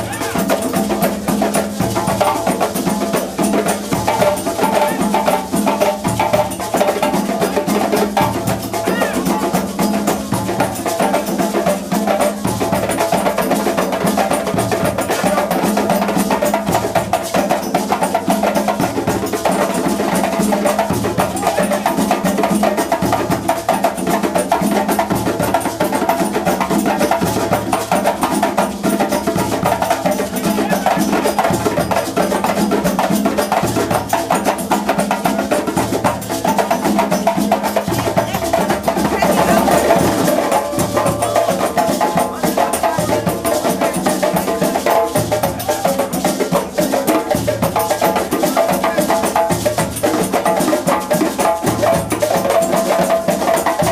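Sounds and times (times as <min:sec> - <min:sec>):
drum ensemble playing: 0:00.0 - 0:53.9
deep drum beat: 0:35.7 - 0:46.0.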